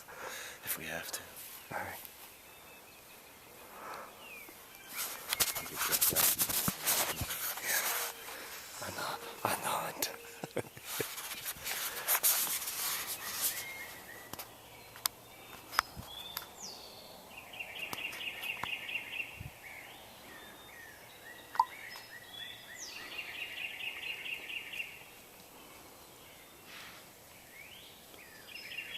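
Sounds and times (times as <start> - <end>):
outdoor ambience: 0.0 - 28.9
rustling: 4.4 - 14.5
songbird whistle and trill: 13.1 - 14.4, 20.3 - 24.9.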